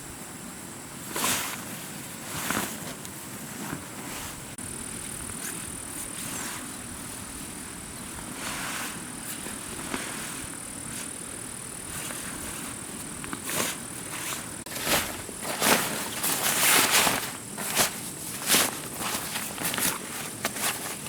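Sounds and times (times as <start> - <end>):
footsteps rustling through leaves: 12.0 - 21.0.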